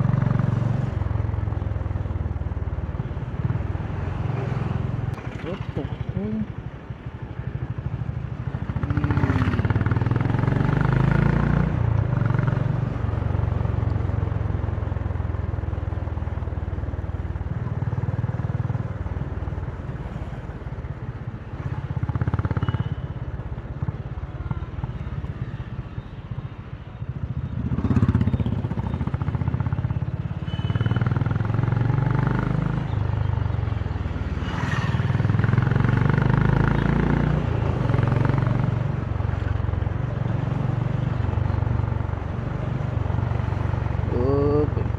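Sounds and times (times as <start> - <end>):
motorcycle engine revving: 8.5 - 12.9, 27.4 - 33.2, 34.4 - 39.0.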